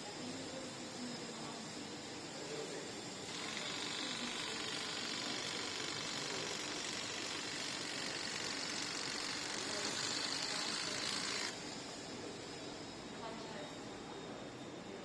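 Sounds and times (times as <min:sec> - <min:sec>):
hair trimmer motor whirring: 0:03.3 - 0:11.6.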